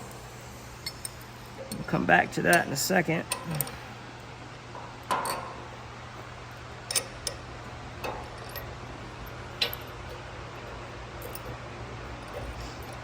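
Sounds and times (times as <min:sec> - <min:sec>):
steady low hum: 0:00.0 - 0:13.0
metallic clicks and clinks: 0:09.6 - 0:13.0.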